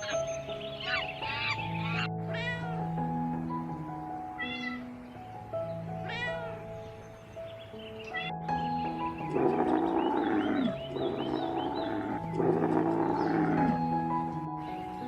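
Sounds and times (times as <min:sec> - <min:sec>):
background music with held notes: 0:00.0 - 0:15.0
cat meowing: 0:00.9 - 0:02.8, 0:04.4 - 0:04.9, 0:06.0 - 0:06.7, 0:08.1 - 0:08.4
harsh animal calls: 0:08.1 - 0:14.0.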